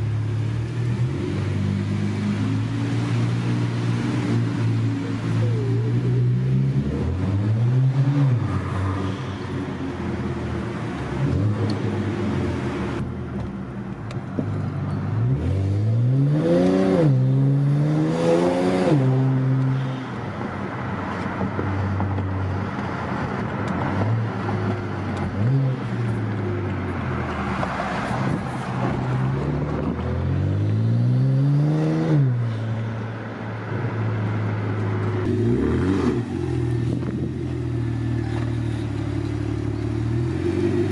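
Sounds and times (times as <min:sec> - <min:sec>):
car engine revving: 0:15.2 - 0:19.9, 0:34.2 - 0:40.9.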